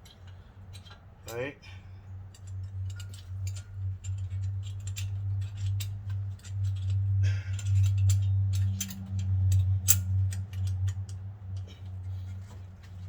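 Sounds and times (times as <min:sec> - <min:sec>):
small metal clicks and clinks: 0:00.0 - 0:01.5, 0:02.2 - 0:11.8
steady low hum: 0:00.0 - 0:13.0.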